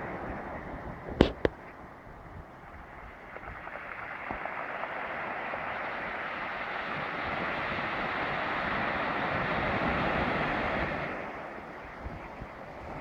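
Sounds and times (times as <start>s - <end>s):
surf washing onto pebble beach: 2.6s - 13.0s.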